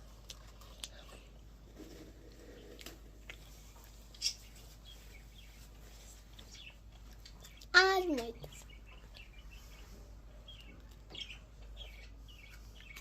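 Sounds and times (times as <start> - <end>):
eating ice cream cone: 0.0 - 5.0.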